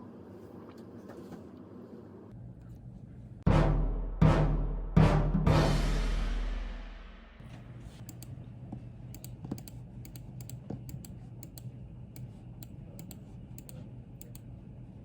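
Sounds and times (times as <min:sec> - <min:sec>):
steady low hum: 0:00.0 - 0:04.3, 0:05.6 - 0:15.0.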